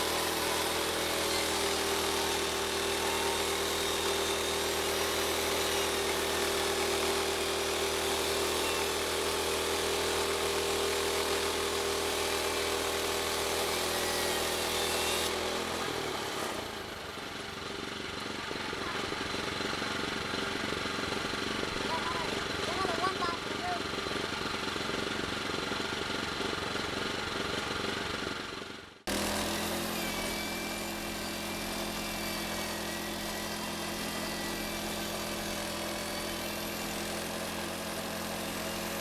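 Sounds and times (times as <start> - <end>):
bandsaw blade sawing wood: 0.0 - 28.5, 29.1 - 39.0
gas engine running: 15.3 - 29.6.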